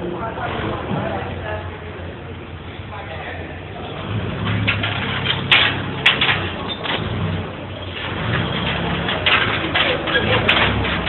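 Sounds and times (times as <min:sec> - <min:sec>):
vehicle engine running: 0:00.0 - 0:11.0
sharp knocks and clanks: 0:04.0 - 0:11.0.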